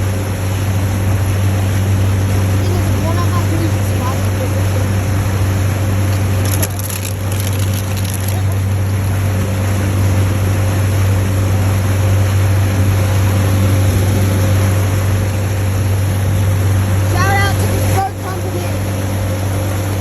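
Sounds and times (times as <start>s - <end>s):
motorboat engine droning: 0.0s - 20.0s
water rushing around boat: 0.0s - 20.0s.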